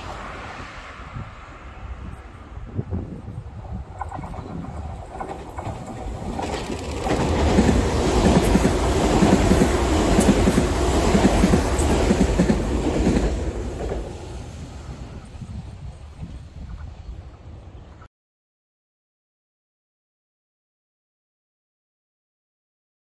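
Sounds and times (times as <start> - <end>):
electric train rumbling past: 0.0 - 18.1
wheels clacking over rail joints: 2.2 - 15.4.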